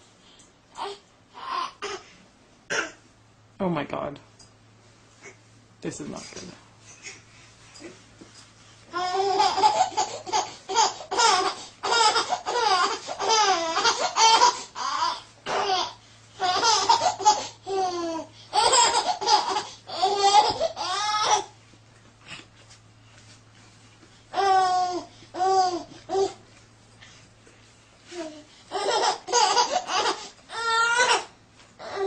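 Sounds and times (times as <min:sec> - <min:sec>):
baby laughing: 0:08.9 - 0:21.5, 0:28.7 - 0:31.3.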